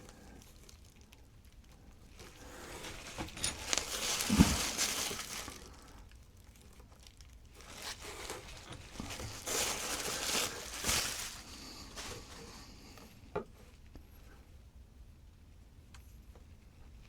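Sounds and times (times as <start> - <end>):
packing wrapping crinkling: 0.0 - 13.0.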